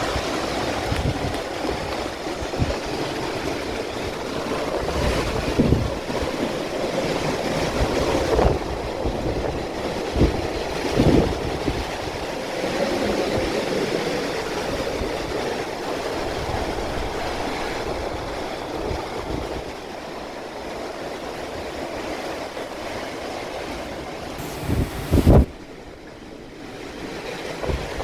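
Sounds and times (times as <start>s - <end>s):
strong gusting wind on microphone: 0.0s - 19.8s, 24.4s - 25.6s
driving rain: 24.4s - 25.5s.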